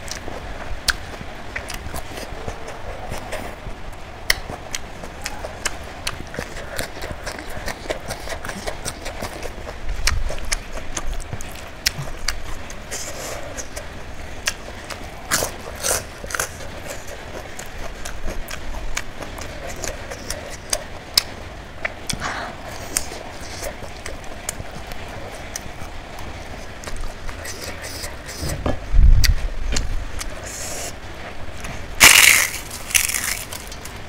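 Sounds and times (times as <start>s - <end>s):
chewing and mouth sounds: 0.0s - 31.0s, 31.6s - 34.0s.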